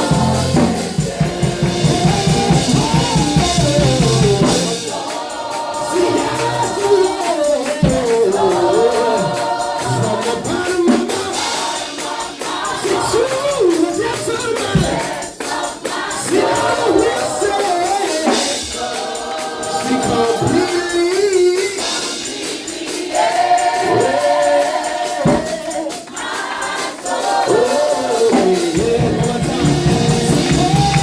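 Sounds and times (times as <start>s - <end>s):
bass line: 0.0s - 4.8s, 28.8s - 31.0s
tambourine: 0.0s - 31.0s
voices singing: 0.0s - 31.0s.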